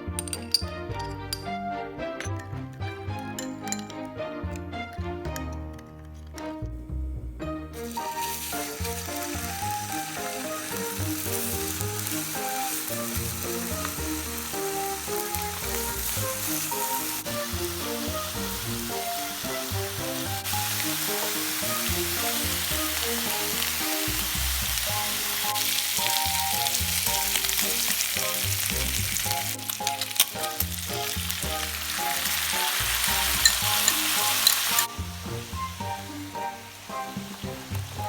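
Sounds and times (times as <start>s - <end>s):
food sizzling in frying pan: 7.8s - 38.0s.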